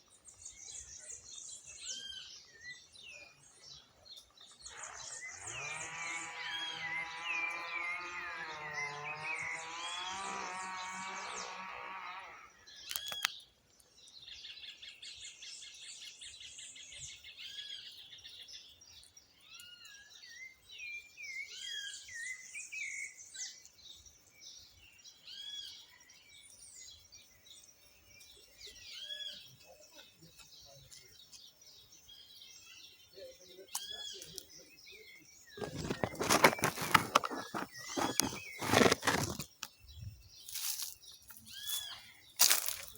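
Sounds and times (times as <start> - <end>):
small birds chirping: 0.0 - 42.9
thrush singing whistled notes: 4.6 - 13.3
loud rustling crackle: 35.6 - 39.8, 40.4 - 42.9.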